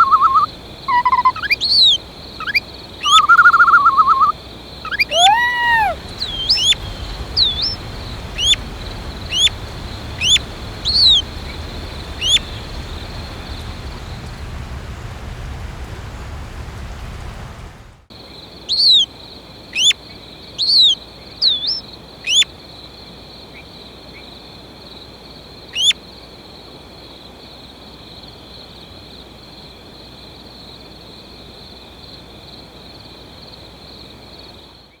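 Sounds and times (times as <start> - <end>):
short bird chirps: 0.0 - 4.3, 4.9 - 7.8
background hiss: 0.0 - 31.8
low rumble: 5.8 - 18.1.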